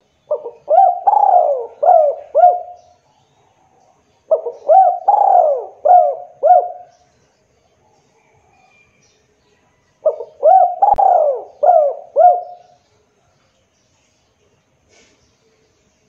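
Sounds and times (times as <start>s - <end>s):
dove cooing: 0.3s - 3.0s, 4.3s - 6.9s, 10.0s - 12.8s.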